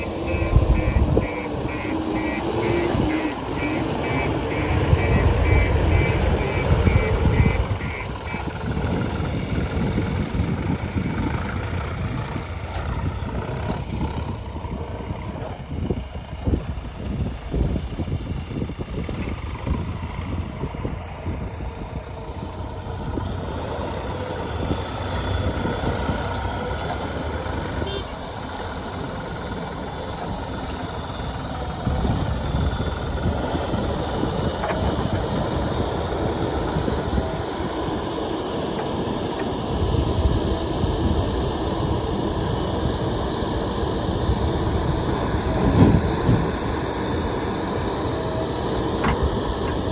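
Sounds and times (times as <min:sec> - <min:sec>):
short beeps: 0:00.0 - 0:08.5
heavy diesel engines running: 0:00.0 - 0:49.9.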